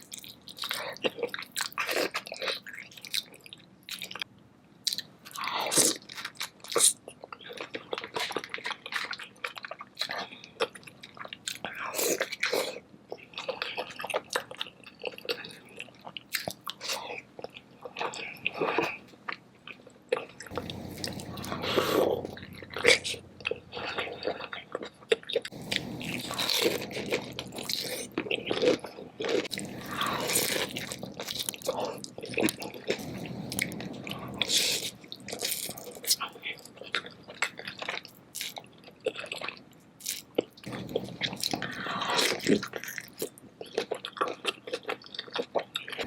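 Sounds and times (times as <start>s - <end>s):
wet chewing and mouth smacks: 0.0s - 46.0s
crunchy bites: 20.2s - 36.3s.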